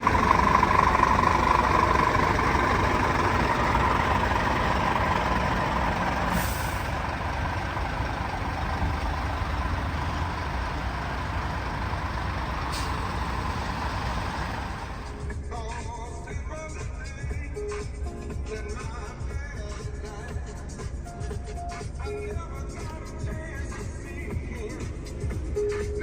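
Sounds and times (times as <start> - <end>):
truck engine drone: 0.0 - 15.3
short hiss: 4.6 - 7.8, 12.4 - 15.2.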